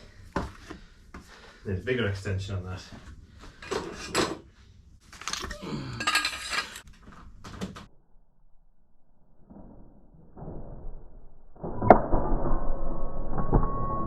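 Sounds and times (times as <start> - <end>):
metal tools clinking and scraping: 5.2 - 6.9.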